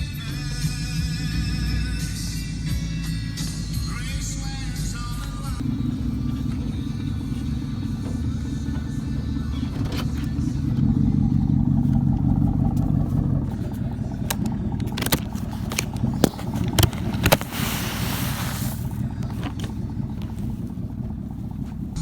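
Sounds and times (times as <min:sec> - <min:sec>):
vehicle engine running: 0:00.0 - 0:22.0
burst of hiss: 0:17.4 - 0:19.0.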